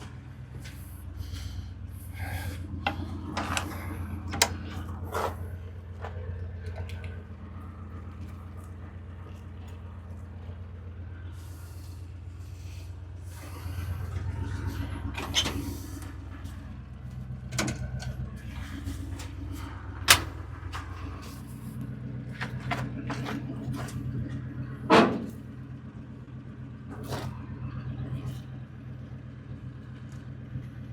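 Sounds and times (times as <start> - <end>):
truck engine idling: 0.0 - 30.9
metallic clicks and knocks: 17.5 - 18.2.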